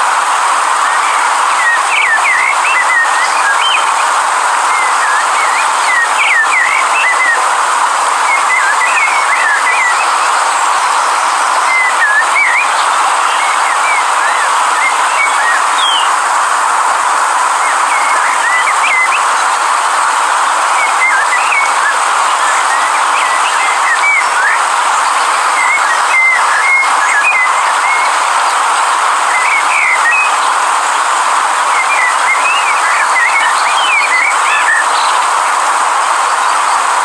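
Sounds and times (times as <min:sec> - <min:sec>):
river water rushing: 0:00.0 - 0:37.0
birds chirping: 0:00.8 - 0:07.5, 0:08.2 - 0:16.4, 0:17.4 - 0:19.7.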